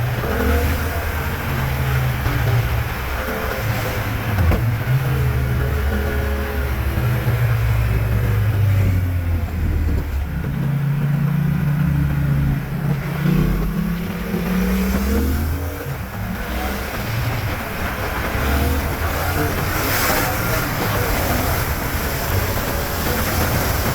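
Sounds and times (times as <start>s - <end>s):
motorcycle engine revving: 0.0s - 23.9s.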